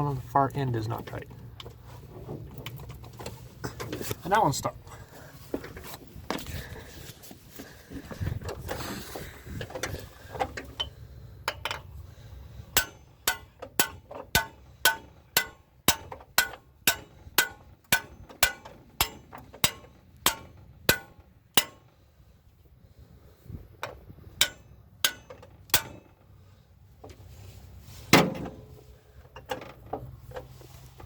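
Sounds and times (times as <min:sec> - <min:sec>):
tools and parts clattering: 0:01.0 - 0:04.2, 0:04.9 - 0:12.0, 0:23.8 - 0:26.3, 0:28.0 - 0:30.8
hammer tapping on metal: 0:12.8 - 0:21.9.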